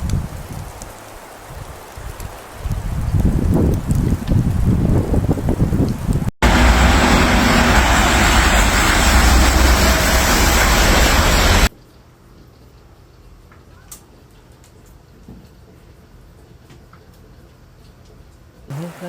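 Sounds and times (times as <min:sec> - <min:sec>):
loud rushing noise with rumble: 0:06.4 - 0:11.7.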